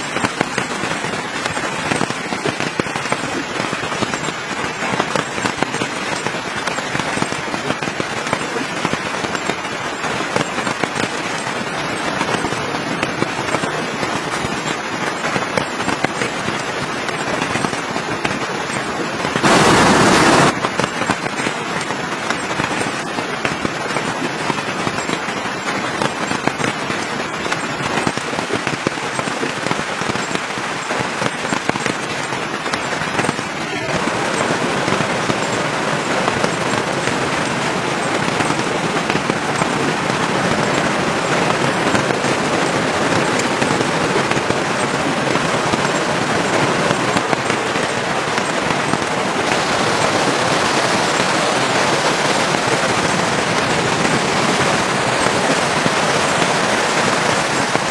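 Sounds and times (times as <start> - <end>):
campfire crackling and popping: 0.0 - 57.9
loud burst of noise: 10.4 - 23.0, 32.8 - 57.9.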